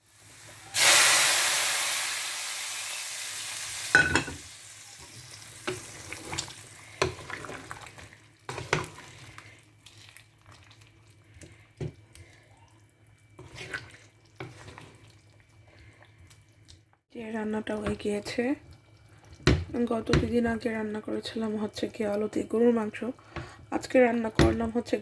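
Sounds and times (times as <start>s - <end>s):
food sizzling in hot oil: 0.0s - 9.3s
knocks and clinks in a pan: 3.9s - 4.4s.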